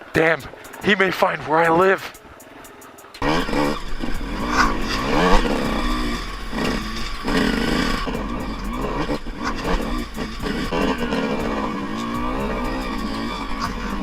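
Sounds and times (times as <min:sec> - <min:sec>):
off-road vehicle engine revving: 0:03.2 - 0:14.0.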